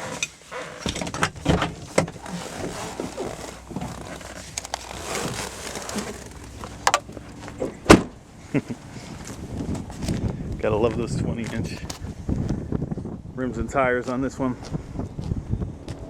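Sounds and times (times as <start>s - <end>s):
rustling and scraping: 0.0s - 7.8s.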